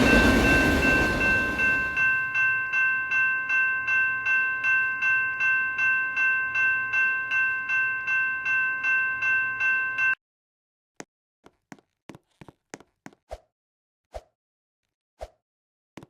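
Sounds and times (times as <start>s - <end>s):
railroad crossing bell ringing: 0.0s - 10.2s.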